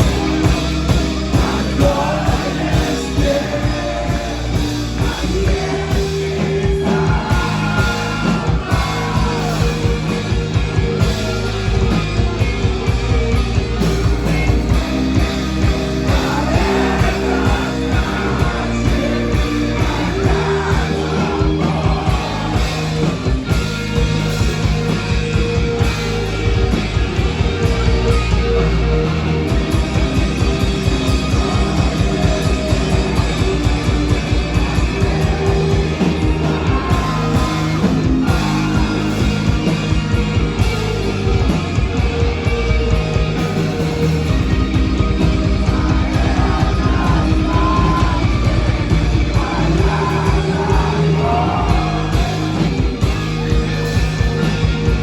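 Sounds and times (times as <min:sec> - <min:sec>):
rock band playing live: 0:00.0 - 0:55.0.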